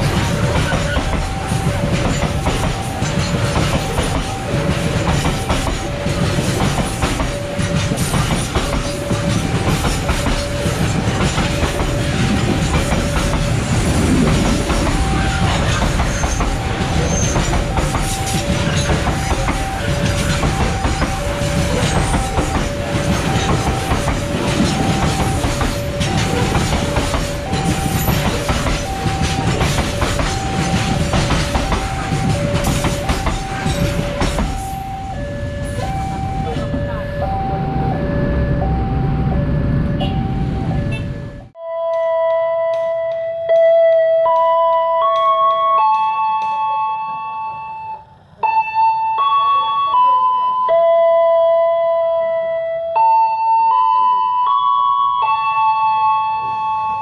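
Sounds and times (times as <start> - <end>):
train wheels clacking over rail joints: 0.0 - 35.9
level crossing alarm two-tone: 0.0 - 57.0.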